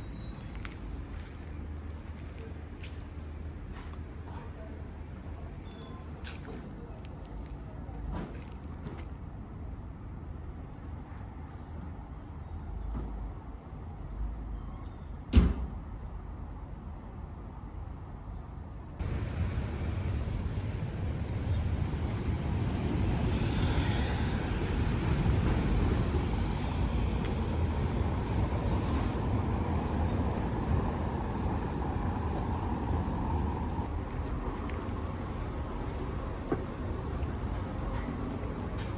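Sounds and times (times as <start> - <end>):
road traffic rumble: 16.3 - 38.9.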